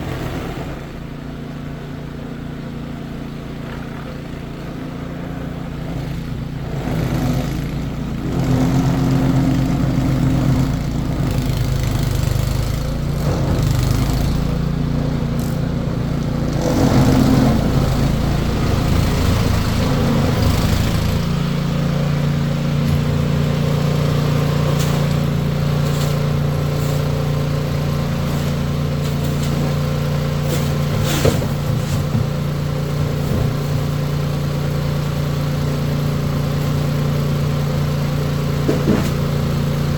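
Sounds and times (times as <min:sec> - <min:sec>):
car engine revving: 0:05.9 - 0:34.0.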